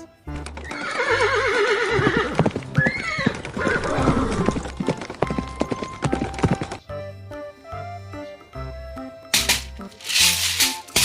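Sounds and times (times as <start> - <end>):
hooves clip-clopping: 0.0 - 6.9
horse whinnying: 0.6 - 4.8
background music beat: 6.2 - 11.0.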